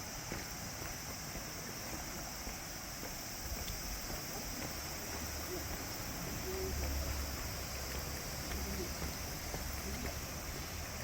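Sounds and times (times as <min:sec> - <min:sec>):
high-pitched hiss: 0:00.0 - 0:11.0.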